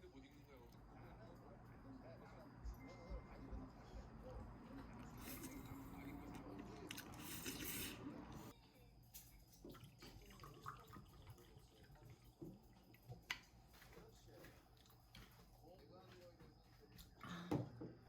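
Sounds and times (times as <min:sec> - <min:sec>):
running water: 0:09.6 - 0:13.2.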